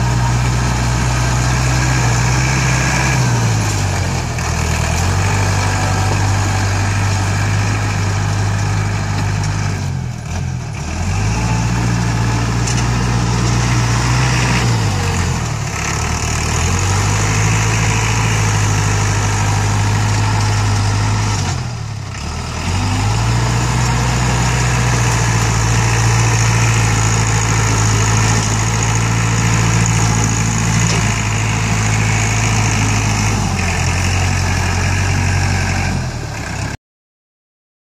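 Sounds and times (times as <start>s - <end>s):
tractor diesel engine running: 0.0s - 36.8s.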